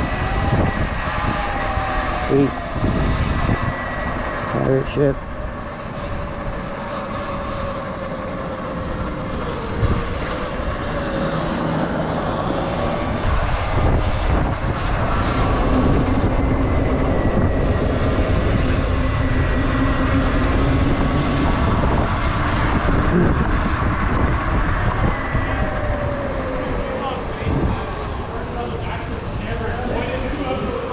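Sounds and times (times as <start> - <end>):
wind rushing over microphone: 0.0 - 30.9.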